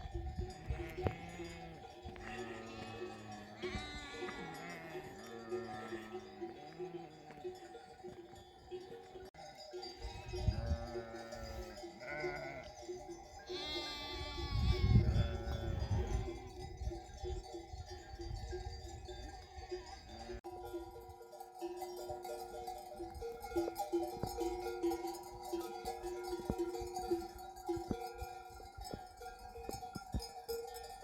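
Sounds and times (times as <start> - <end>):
sheep bells ringing: 0.0 - 31.0
sheep and lambs bleating: 0.5 - 7.9, 10.0 - 16.6.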